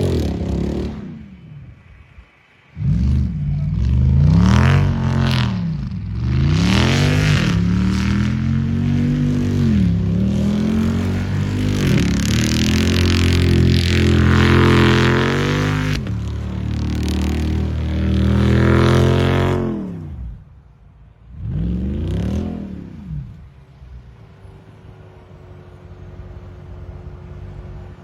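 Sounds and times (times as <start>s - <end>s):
car engine revving: 0.0s - 1.6s, 2.7s - 28.0s.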